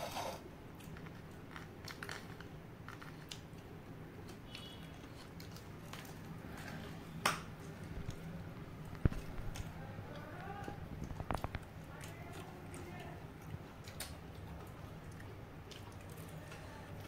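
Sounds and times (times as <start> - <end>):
person chewing crispy chicken: 7.7 - 17.0.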